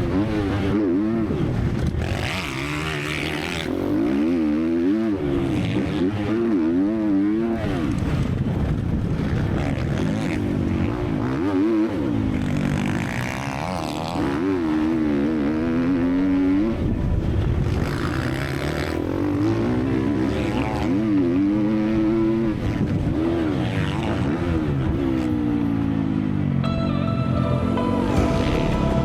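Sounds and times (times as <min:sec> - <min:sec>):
motocross engine revving: 0:00.0 - 0:16.9.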